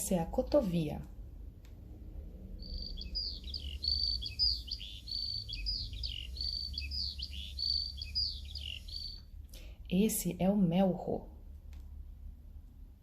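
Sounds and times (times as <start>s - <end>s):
low steady hum: 0.0s - 13.0s
lark singing: 2.6s - 9.2s.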